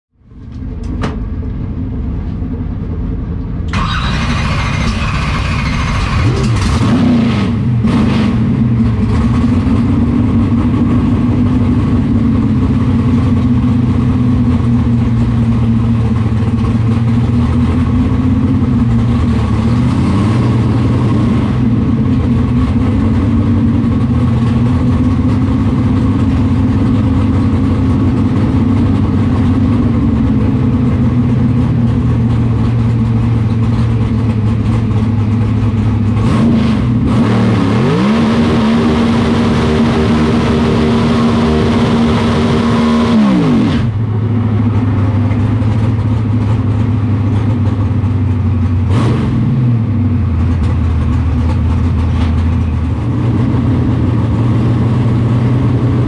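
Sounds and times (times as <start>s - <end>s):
drag car engine idling: 0.2s - 6.8s, 7.6s - 36.3s, 39.4s - 48.9s, 49.6s - 56.0s.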